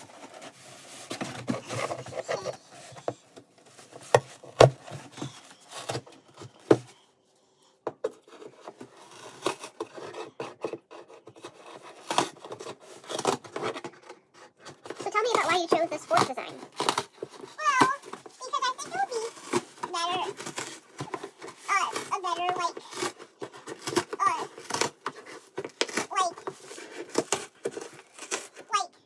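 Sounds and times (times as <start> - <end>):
scissors cutting stiff material: 8.3 - 13.9, 14.9 - 18.2, 18.8 - 28.6.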